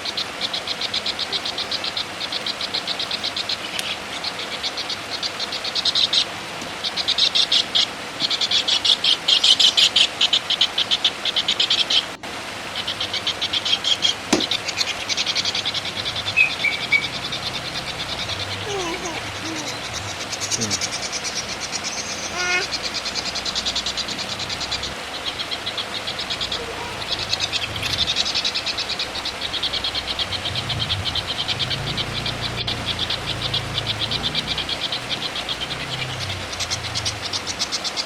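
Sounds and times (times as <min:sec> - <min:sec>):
songbird rattling chatter: 0:13.8 - 0:38.0.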